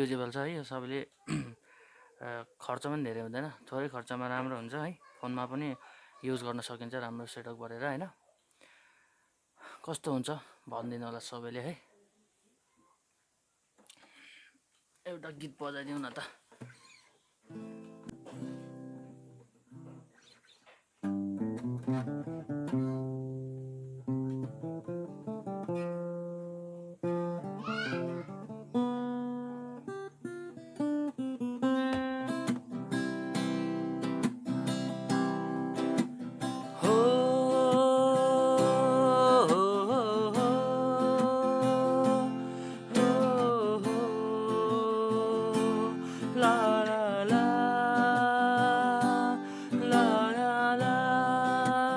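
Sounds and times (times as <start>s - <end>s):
acoustic guitar strumming: 17.5s - 20.1s, 21.0s - 51.9s
person singing long notes: 36.7s - 51.9s.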